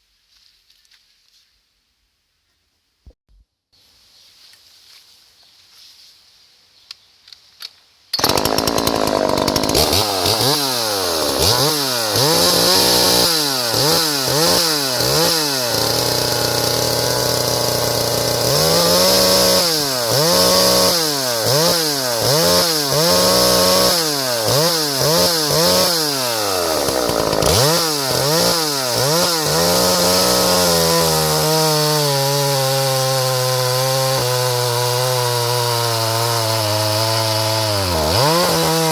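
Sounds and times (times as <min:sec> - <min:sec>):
chainsaw revving: 0:08.2 - 0:38.9.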